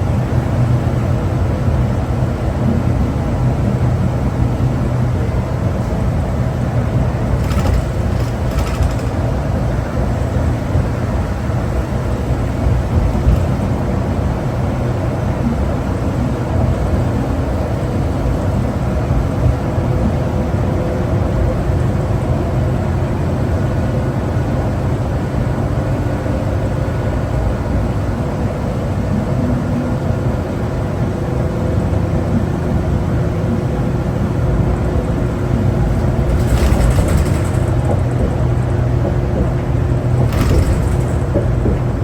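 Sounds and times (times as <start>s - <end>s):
bus engine rumbling: 0.0s - 42.0s.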